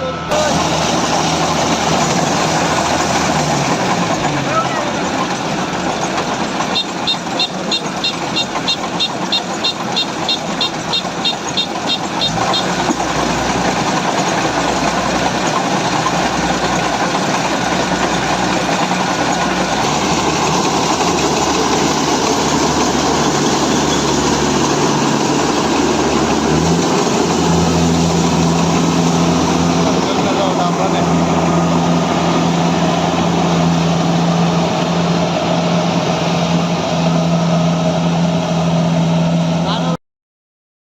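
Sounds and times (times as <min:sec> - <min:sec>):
combine harvester engine running: 0:00.0 - 0:40.0
rapid high-pitched beeping: 0:06.7 - 0:12.7.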